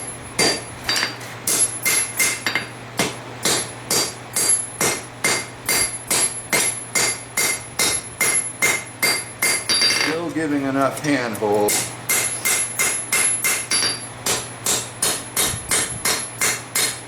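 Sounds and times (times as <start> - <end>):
hammer striking steel on anvil: 0.0 - 10.2, 11.6 - 17.0.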